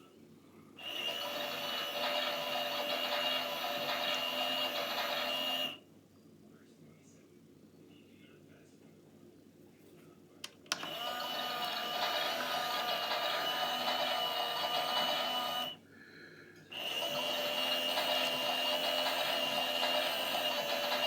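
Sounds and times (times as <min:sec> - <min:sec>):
washing machine motor whine: 0:00.8 - 0:05.8, 0:10.7 - 0:15.8, 0:16.7 - 0:21.0.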